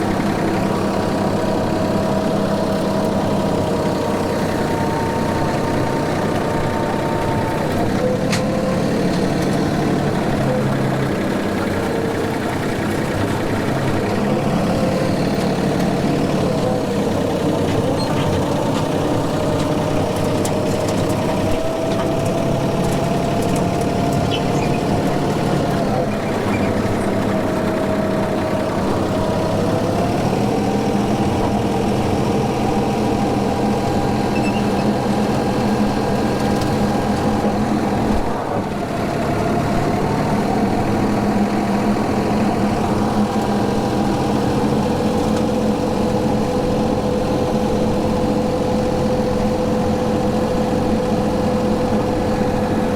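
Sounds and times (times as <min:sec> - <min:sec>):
tractor engine mowing: 0:00.0 - 0:52.9.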